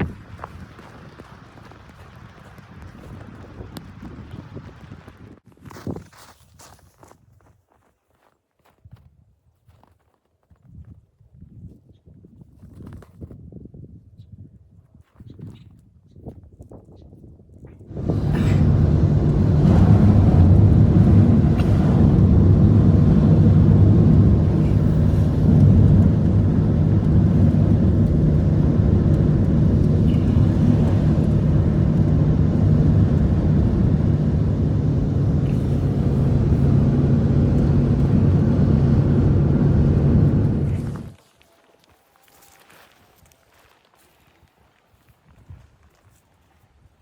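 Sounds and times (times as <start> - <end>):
engine running with low hum: 17.9 - 41.2.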